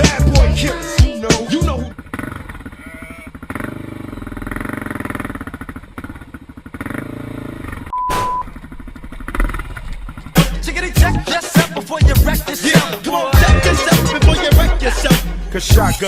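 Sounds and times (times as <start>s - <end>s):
small engine pulsing: 1.9s - 15.1s
short steady beep: 7.9s - 8.5s.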